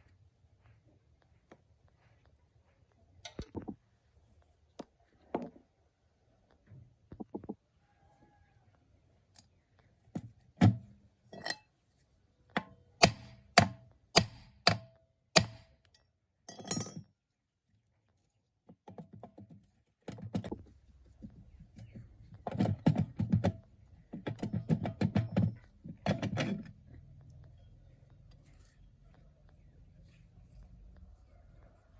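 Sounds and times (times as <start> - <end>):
metal tools knocking and clinking: 11.3 - 11.7, 16.5 - 17.1.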